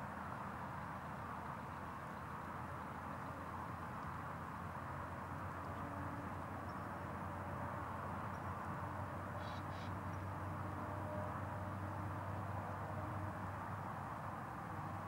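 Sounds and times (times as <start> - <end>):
outdoor background hum and hiss: 0.0 - 15.0
short high bird calls: 9.4 - 10.0.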